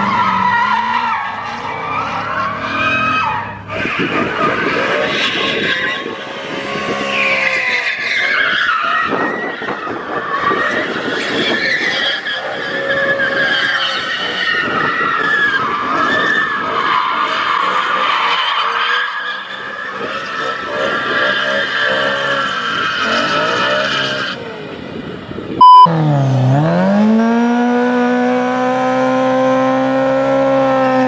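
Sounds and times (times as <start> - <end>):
tires squealing: 0.0 - 24.5
engine revving: 25.6 - 31.0.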